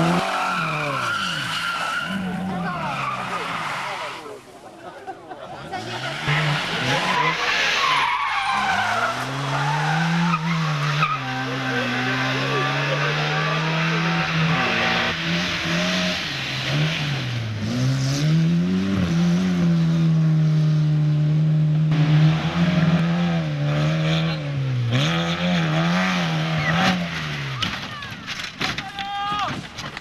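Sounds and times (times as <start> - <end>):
race car engine at high revs: 0.0 - 4.2, 5.6 - 27.9.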